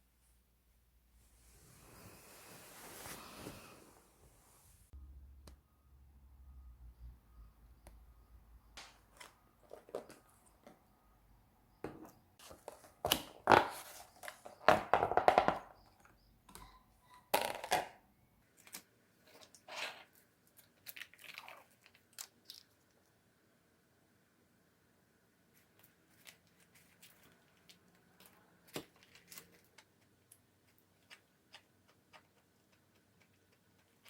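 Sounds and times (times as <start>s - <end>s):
rustling and crinkling of handling: 1.2s - 4.9s, 25.5s - 34.0s.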